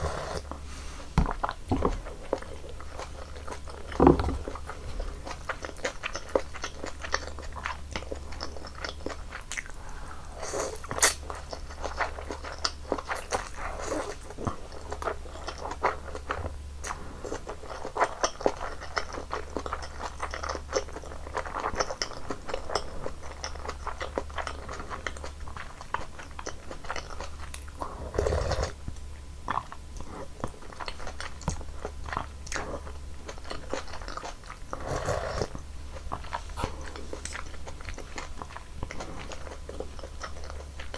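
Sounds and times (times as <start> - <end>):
steady low hum: 0.0 - 40.9
chewing with wet mouth clicks: 1.2 - 40.9.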